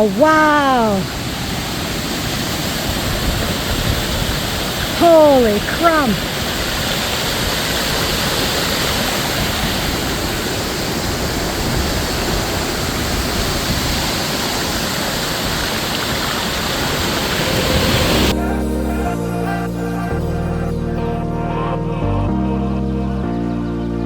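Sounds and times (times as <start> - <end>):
waterfall rushing: 0.0 - 18.4.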